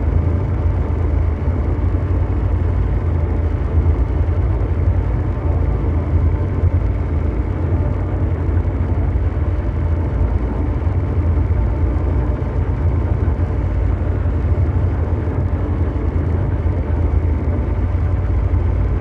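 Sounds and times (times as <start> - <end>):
deep mechanical drone: 0.0 - 19.0.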